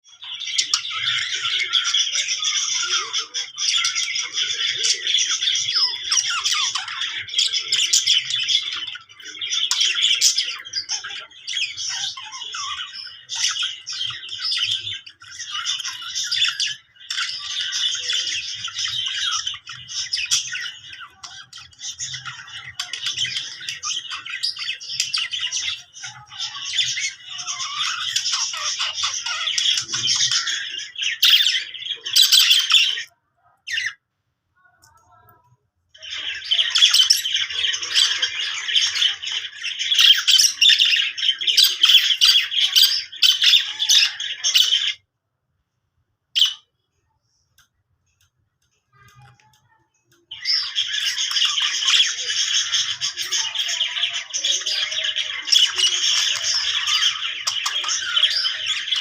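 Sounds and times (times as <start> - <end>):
budgerigar chattering and warbling: 36.0 - 45.0, 49.7 - 59.0.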